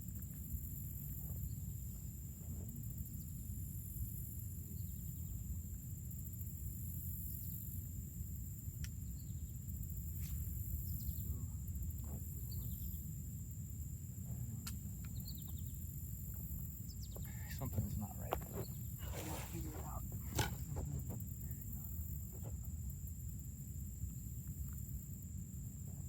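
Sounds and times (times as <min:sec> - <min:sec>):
high thin hum: 0:16.8 - 0:22.9.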